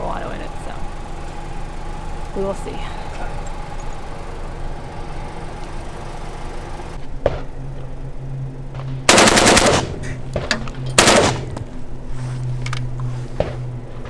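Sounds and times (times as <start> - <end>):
automatic rifle fire: 9.1 - 11.8.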